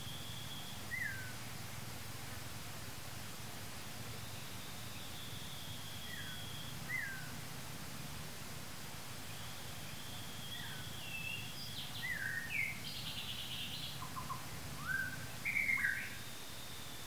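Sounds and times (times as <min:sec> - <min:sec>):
bird trill: 0:00.0 - 0:01.4, 0:04.2 - 0:07.4, 0:09.3 - 0:17.0
birds singing whistled notes: 0:00.0 - 0:01.8, 0:04.0 - 0:07.5, 0:09.2 - 0:17.0
low background noise: 0:00.0 - 0:17.0.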